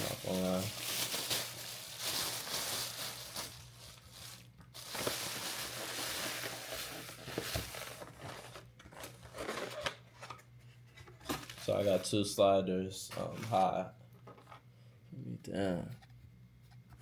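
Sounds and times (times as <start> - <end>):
paper packaging rustling and tearing: 0.0 - 10.4, 11.2 - 12.3.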